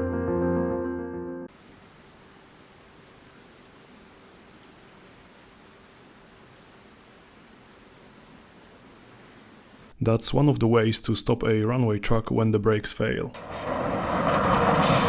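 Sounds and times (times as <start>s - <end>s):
insects chirring: 1.5s - 10.0s.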